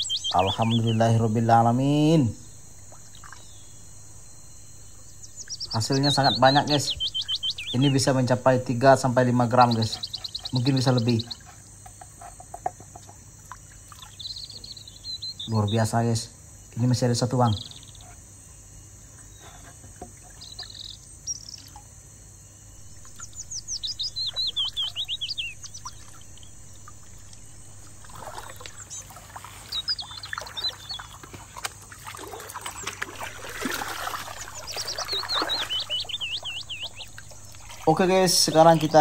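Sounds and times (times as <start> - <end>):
songbird chirping: 0.0 - 11.5, 13.9 - 18.2, 19.2 - 21.9, 22.7 - 39.0
water splashing and trickling: 0.0 - 11.6, 12.5 - 14.2, 22.8 - 39.0
high insect drone: 0.0 - 39.0.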